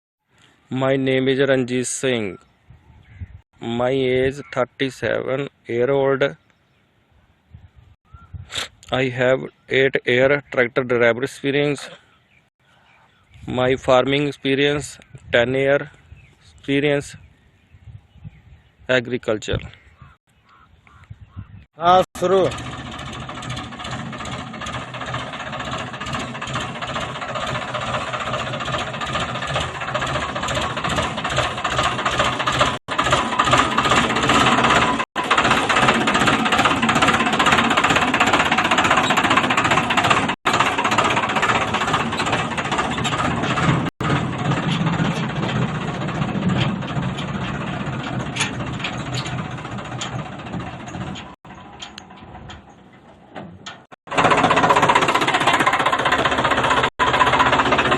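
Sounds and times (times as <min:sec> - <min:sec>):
tractor diesel engine knocking: 0:21.9 - 0:57.9.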